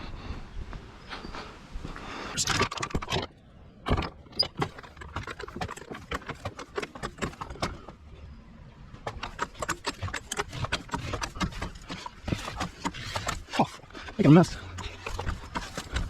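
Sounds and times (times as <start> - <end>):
hard objects clattering: 2.4 - 8.0, 9.0 - 16.0.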